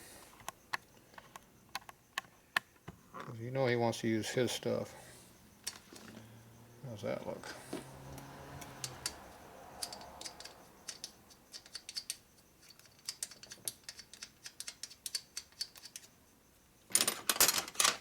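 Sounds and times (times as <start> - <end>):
metallic clicks of tools: 8.6 - 9.2, 9.8 - 16.2.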